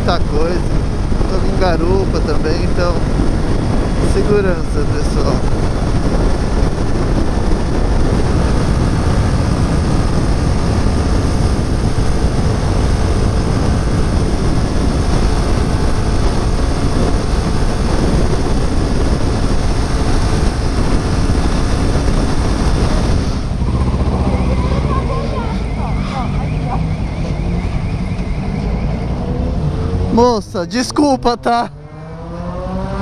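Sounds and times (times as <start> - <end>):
wind rush over microphone: 0.0 - 33.0
motorcycle engine running: 5.4 - 27.2.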